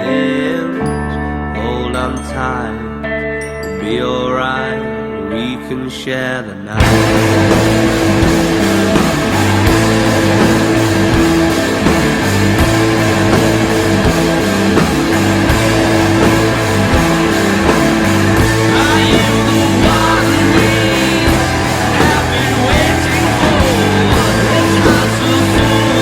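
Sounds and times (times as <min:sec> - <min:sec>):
distorted electric guitars: 0:00.0 - 0:26.0
bass guitar: 0:06.7 - 0:26.0
drums keeping a steady beat: 0:06.8 - 0:26.0.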